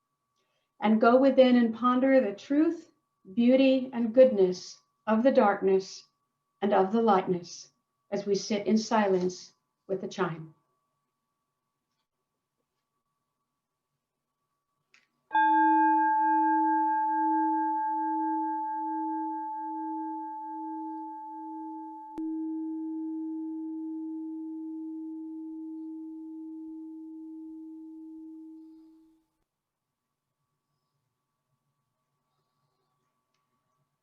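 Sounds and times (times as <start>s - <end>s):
meditation chime ringing: 15.3s - 29.2s.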